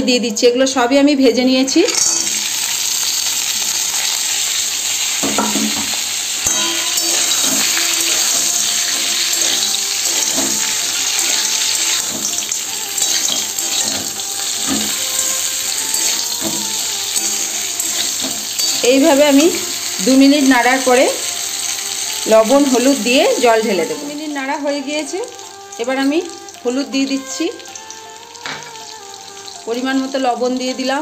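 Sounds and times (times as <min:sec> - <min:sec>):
vegetables sizzling in hot oil: 0:01.4 - 0:31.0
metal spatula scraping pan: 0:05.2 - 0:24.2.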